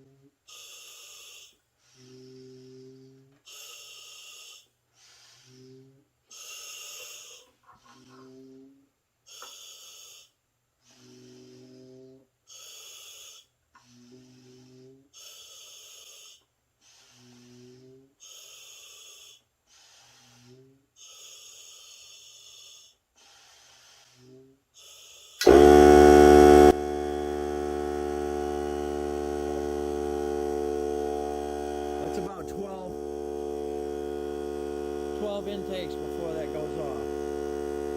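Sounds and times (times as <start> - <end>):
air compressor running: 25.4 - 37.9.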